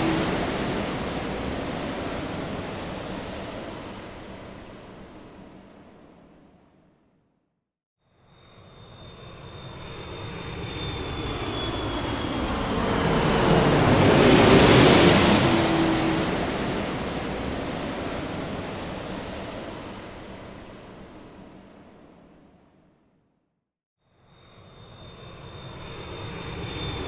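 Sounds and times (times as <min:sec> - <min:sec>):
jet airplane passing overhead: 0:00.0 - 0:05.6, 0:09.0 - 0:21.5, 0:25.0 - 0:27.0.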